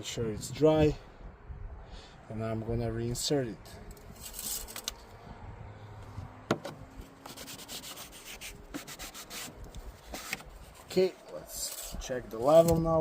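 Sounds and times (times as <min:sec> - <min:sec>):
dipstick scraping in metal tube: 0:07.2 - 0:12.8.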